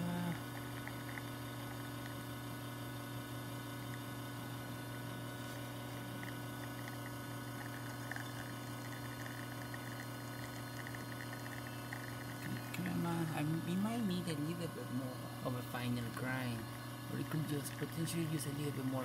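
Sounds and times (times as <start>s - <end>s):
espresso machine pump humming: 0.0s - 19.0s
coffee trickling and dripping: 0.2s - 14.8s.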